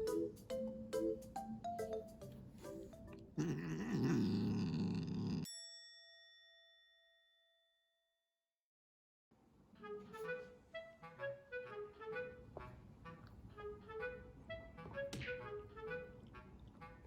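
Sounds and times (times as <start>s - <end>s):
light mallet music: 0.0s - 3.2s
cat growling and hissing: 3.3s - 5.5s
bell-like ding: 5.5s - 7.6s.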